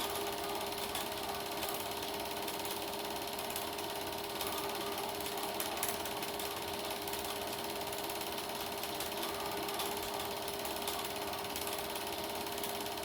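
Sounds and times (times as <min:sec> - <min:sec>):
film projector clatter: 0:00.0 - 0:13.0
motor hum: 0:00.0 - 0:13.0.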